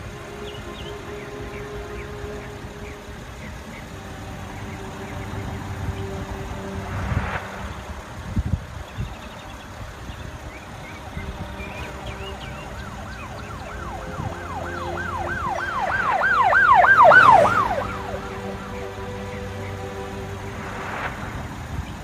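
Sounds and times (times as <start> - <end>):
low traffic rumble: 0.0 - 22.0
siren in fast yelp: 13.2 - 19.1.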